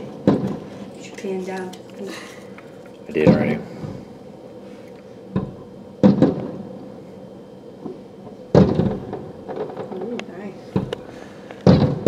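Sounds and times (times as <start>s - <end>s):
fireworks booming: 5.4s - 6.7s, 8.5s - 10.2s, 10.8s - 12.0s.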